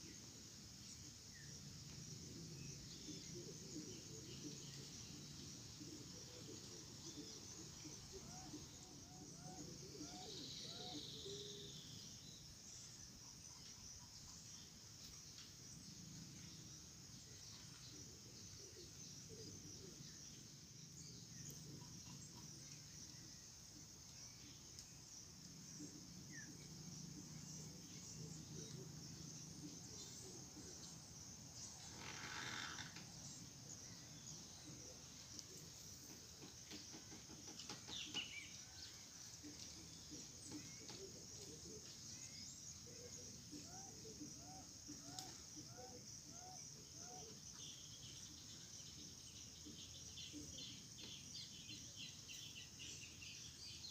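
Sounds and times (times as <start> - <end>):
insect drone: 0.0 - 53.9
bird chirps: 25.8 - 53.9.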